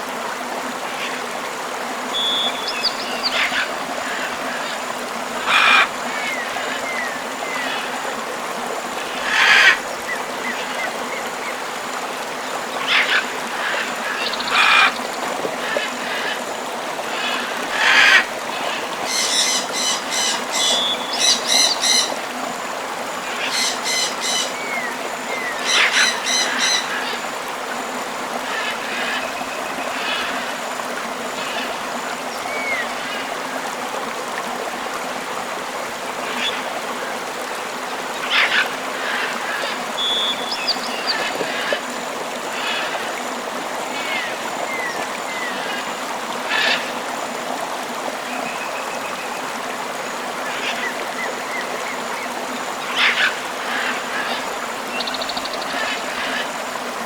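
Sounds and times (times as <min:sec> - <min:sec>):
river rushing: 0:00.0 - 0:57.0
birds chirping: 0:02.1 - 0:04.3.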